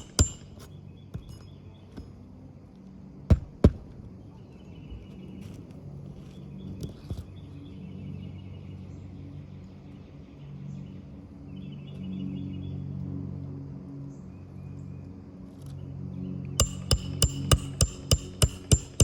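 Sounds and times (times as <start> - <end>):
hammer striking roofing nails: 0.0 - 1.3, 3.3 - 3.9, 16.6 - 19.0.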